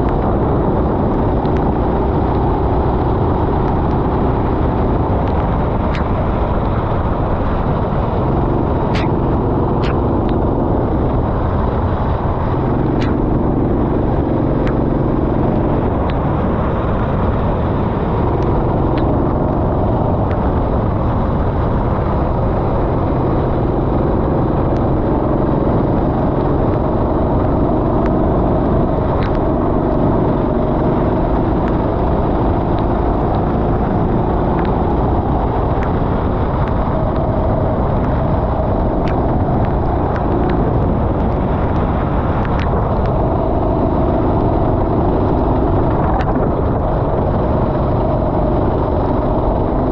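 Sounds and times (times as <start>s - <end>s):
steady rush of noise: 0.0s - 49.9s
sharp clicks: 8.9s - 10.4s.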